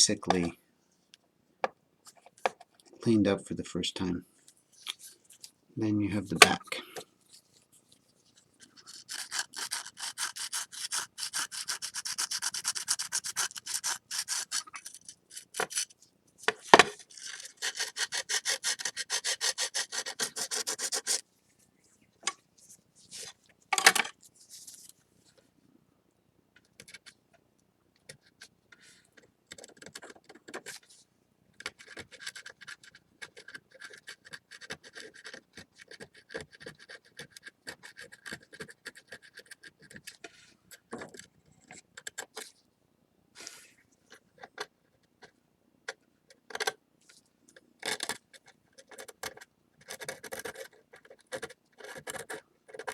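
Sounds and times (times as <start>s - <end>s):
sandpaper rubbing on ceramic: 8.8s - 15.4s, 17.1s - 21.2s.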